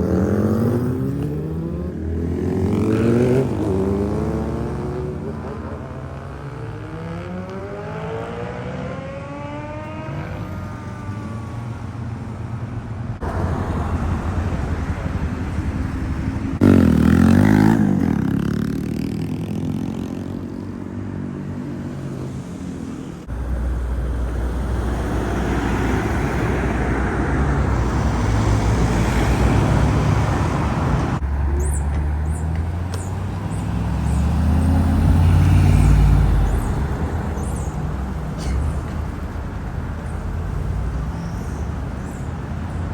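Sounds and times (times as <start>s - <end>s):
car engines accelerating: 0.0s - 42.9s.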